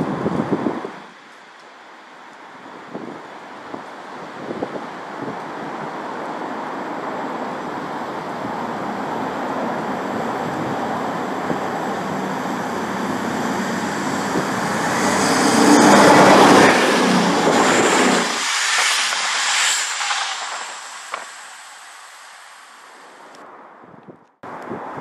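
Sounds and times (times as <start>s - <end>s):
diesel train passing: 7.9s - 23.2s.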